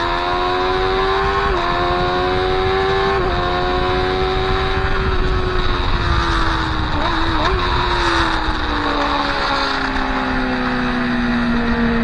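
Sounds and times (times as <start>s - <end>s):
wind rush: 0.0s - 12.0s
motorcycle engine upshifting: 0.2s - 12.0s.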